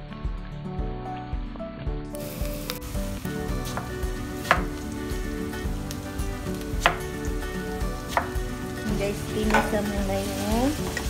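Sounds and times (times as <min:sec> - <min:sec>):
onions sizzling in oil: 0:02.2 - 0:11.0
knocks from stirring and cutting: 0:03.6 - 0:05.2, 0:06.5 - 0:10.0.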